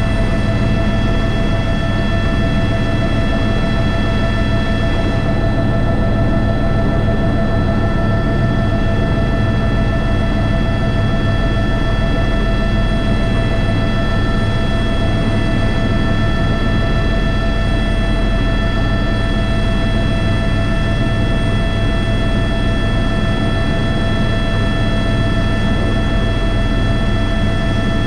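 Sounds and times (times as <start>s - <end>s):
helicopter rotor rumble: 0.0s - 28.0s
helicopter turbine whine: 0.0s - 28.0s.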